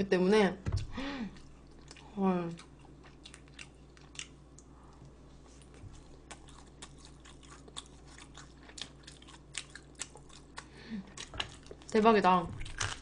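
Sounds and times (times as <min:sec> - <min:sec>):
person chewing crunchy food: 0:01.3 - 0:11.9, 0:12.6 - 0:13.0.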